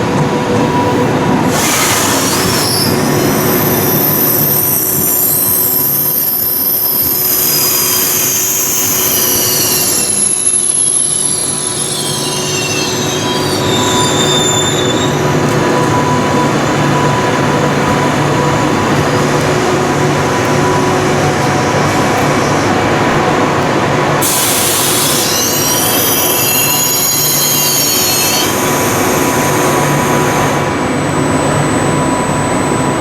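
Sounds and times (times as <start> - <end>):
train wheel squeal: 1.5 - 17.5, 24.2 - 33.0.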